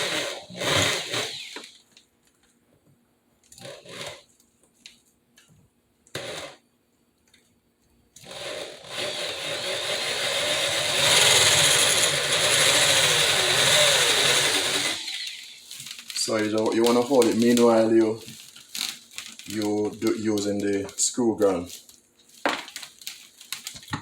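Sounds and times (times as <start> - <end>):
electric drill running: 0.0 - 1.8, 8.2 - 15.6.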